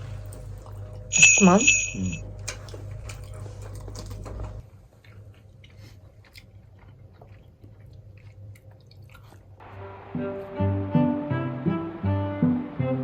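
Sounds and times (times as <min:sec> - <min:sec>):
low steady hum: 0:00.0 - 0:10.8
person chewing food: 0:02.4 - 0:09.6
music: 0:09.6 - 0:13.0.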